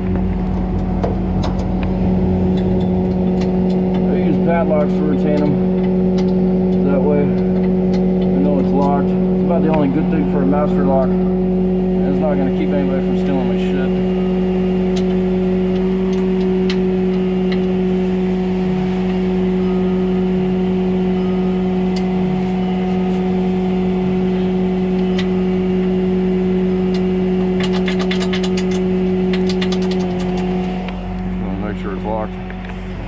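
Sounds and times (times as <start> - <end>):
truck engine humming: 0.0 - 33.0
rapid clicks: 26.9 - 31.3.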